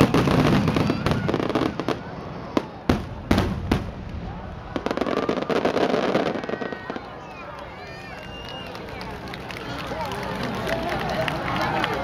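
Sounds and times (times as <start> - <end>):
fireworks banging and popping: 0.0 - 7.2.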